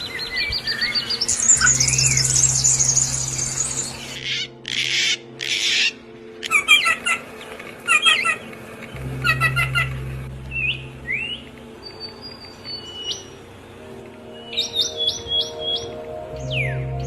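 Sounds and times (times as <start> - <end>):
bird chirps: 0.0 - 5.8.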